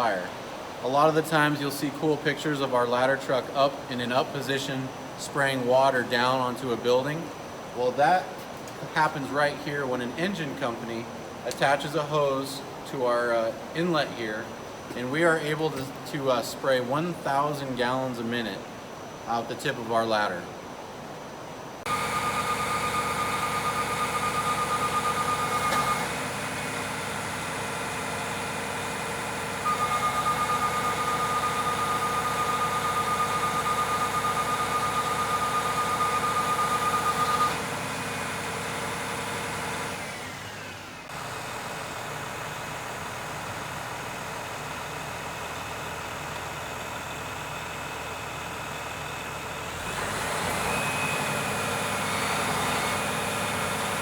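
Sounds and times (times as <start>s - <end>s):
truck engine running: 21.9s - 54.0s
high warning tone: 29.6s - 37.6s.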